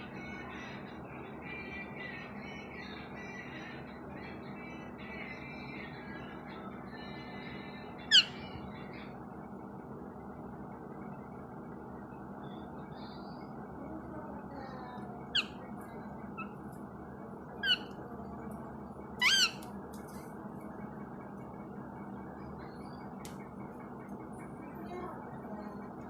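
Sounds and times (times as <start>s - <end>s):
low background hum: 0.0s - 26.0s
parrot squawking: 8.1s - 8.5s, 15.3s - 15.6s, 16.4s - 16.6s, 17.6s - 17.9s, 19.2s - 19.6s.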